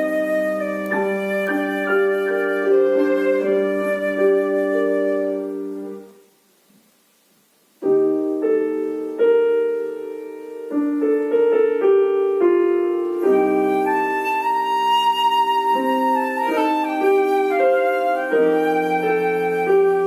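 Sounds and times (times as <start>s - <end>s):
flute playing: 0.0s - 6.2s, 13.1s - 20.0s
piano chords: 0.0s - 6.3s, 7.8s - 20.0s.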